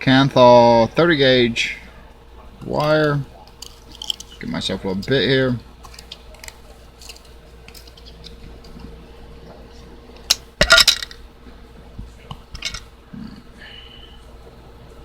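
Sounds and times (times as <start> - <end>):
small metal parts clicking: 2.8 - 4.4, 5.8 - 8.4, 10.3 - 11.2, 12.6 - 12.9
metallic clatter: 3.6 - 4.4, 10.3 - 11.2, 12.6 - 12.9.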